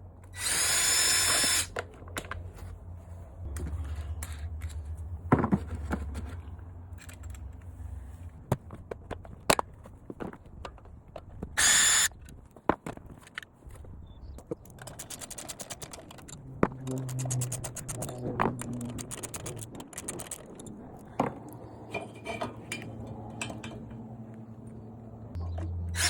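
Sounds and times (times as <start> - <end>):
cordless drill spinning: 0.3 - 1.7, 11.6 - 12.1
low rumble: 1.9 - 8.5, 16.1 - 19.9
tool handling clicks and knocks: 3.5 - 7.8, 8.5 - 24.4.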